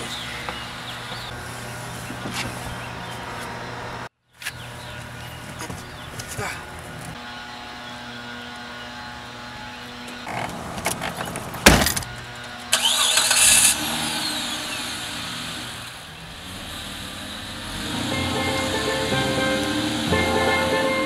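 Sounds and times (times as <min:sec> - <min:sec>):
car engine cranking and starting: 0:10.3 - 0:21.0.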